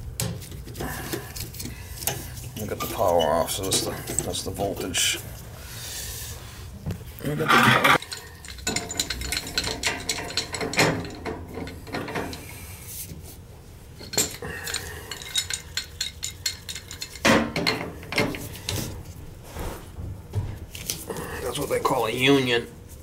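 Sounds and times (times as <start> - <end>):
metal tools clinking: 7.5 - 12.6, 14.0 - 18.5.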